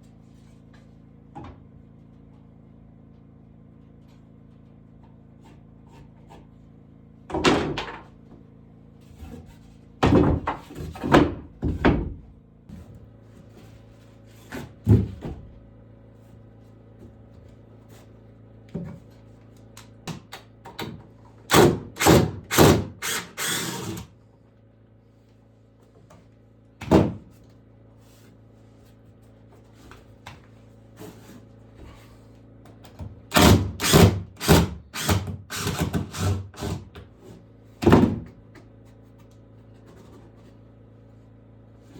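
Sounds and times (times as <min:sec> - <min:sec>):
woodworking knocks and thuds: 0:07.3 - 0:08.2, 0:09.2 - 0:13.0, 0:14.4 - 0:15.6, 0:26.8 - 0:27.4, 0:37.8 - 0:38.7.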